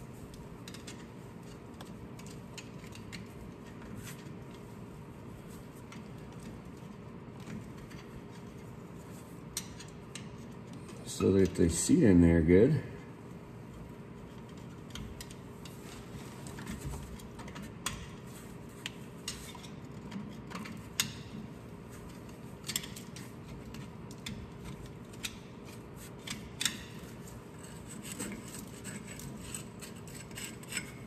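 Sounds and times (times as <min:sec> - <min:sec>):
hand tool clicking and scraping metal: 0:22.6 - 0:31.0.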